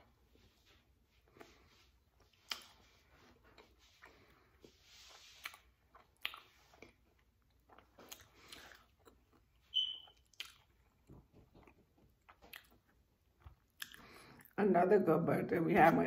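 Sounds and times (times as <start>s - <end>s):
crunchy chewing: 5.4s - 14.5s
high squeak: 9.7s - 10.2s.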